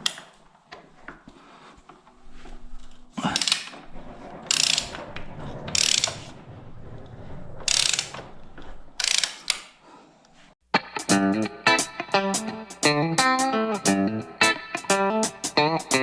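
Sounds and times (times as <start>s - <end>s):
ratchet wrench clicking: 9.0s - 9.6s.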